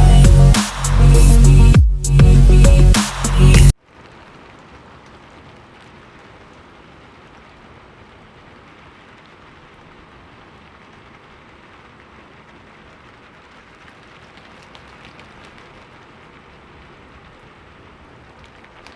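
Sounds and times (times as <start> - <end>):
electronic music: 0.0 - 3.7
heavy rain falling: 2.3 - 18.9.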